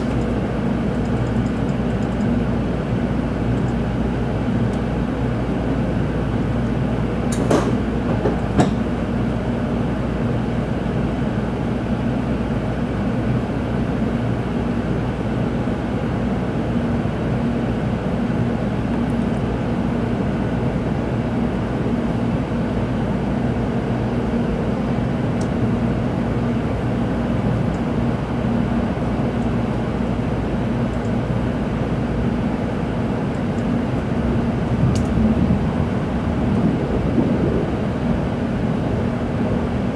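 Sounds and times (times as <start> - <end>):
train running noise inside car: 0.0 - 39.9.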